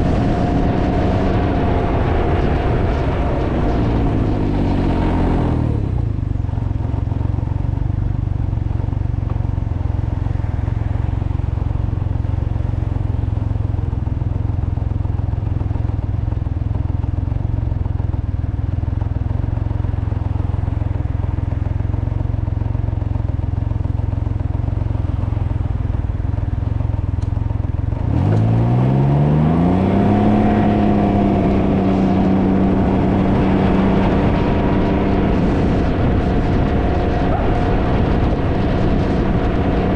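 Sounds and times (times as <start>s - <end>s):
wind noise on microphone: 0.0s - 7.1s, 28.1s - 39.9s
motorcycle engine revving: 0.0s - 39.9s
motorcycle engine rumbling: 0.0s - 39.9s.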